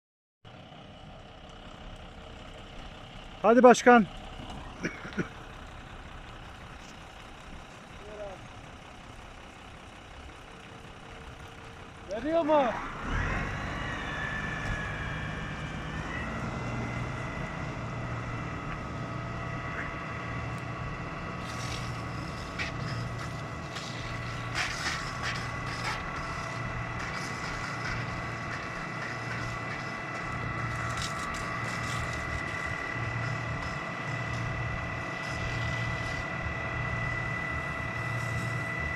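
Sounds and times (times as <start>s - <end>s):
engine running with high whine: 0.5s - 38.9s.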